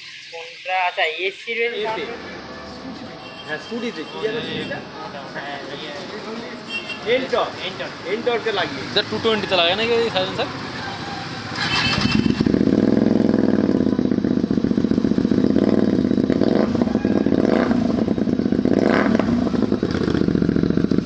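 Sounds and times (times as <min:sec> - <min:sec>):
motorcycle engine idling: 0:08.0 - 0:21.0.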